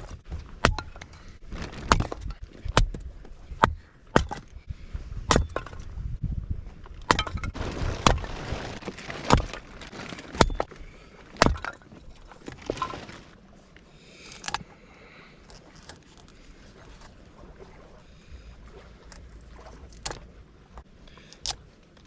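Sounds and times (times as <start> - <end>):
wood cracks and knocks: 0.0 - 4.5, 6.8 - 10.7, 11.3 - 13.3.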